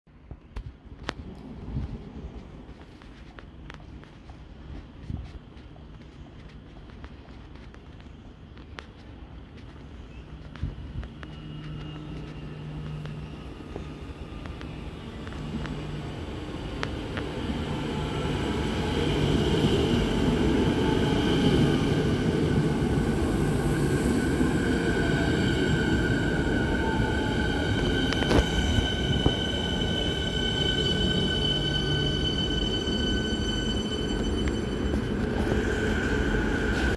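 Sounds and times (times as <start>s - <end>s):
high-pitched brake squeal: 11.1s - 16.1s, 24.7s - 36.9s.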